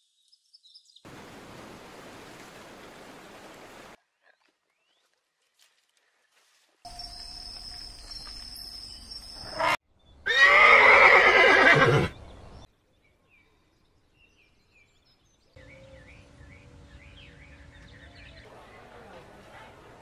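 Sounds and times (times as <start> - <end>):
horse whinnying: 9.5 - 12.1.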